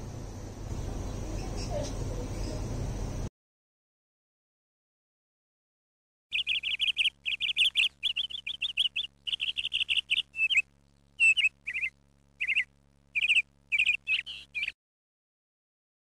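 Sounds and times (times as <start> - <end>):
faint low hum: 0.0 - 3.3, 6.3 - 14.8
songbird chirping: 0.7 - 2.7, 6.3 - 14.8.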